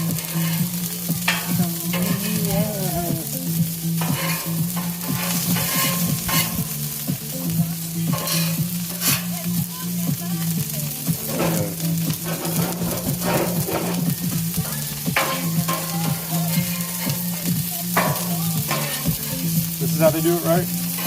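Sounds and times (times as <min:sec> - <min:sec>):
food sizzling on a griddle: 0:00.0 - 0:21.0
utensil scraping and tapping griddle: 0:00.0 - 0:21.0.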